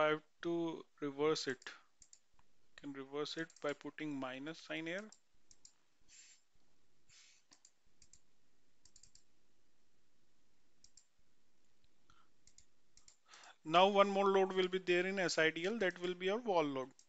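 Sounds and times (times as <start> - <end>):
mouse clicks: 4.9 - 6.4, 7.2 - 8.2, 8.8 - 9.3, 10.8 - 11.1, 11.8 - 13.2.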